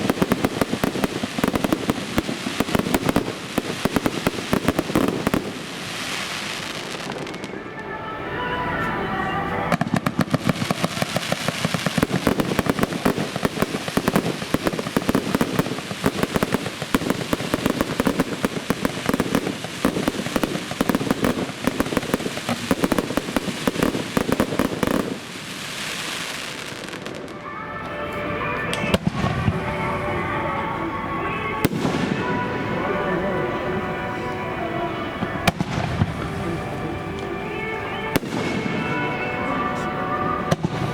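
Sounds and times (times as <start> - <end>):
fireworks crackling pops: 0.0 - 8.9, 9.5 - 30.7, 31.4 - 33.1, 34.1 - 40.9.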